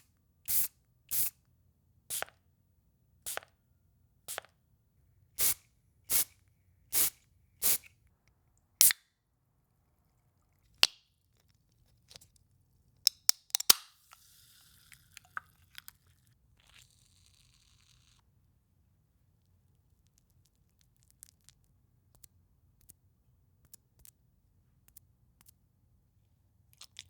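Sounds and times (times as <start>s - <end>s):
spray bottle squirting: 5.4s - 6.3s, 7.0s - 7.9s
quiet hiss with crackles: 14.0s - 24.2s.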